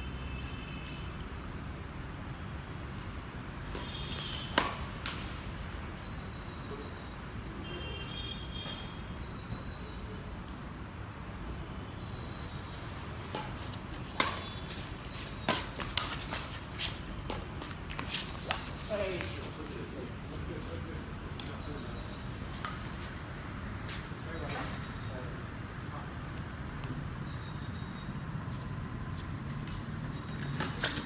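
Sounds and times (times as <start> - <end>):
racquet hitting shuttlecock: 3.7 - 5.4, 13.2 - 19.2.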